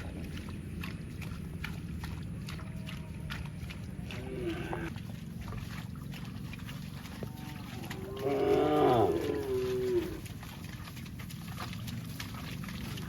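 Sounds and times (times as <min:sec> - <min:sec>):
cow mooing: 0:02.7 - 0:04.9, 0:07.2 - 0:10.2.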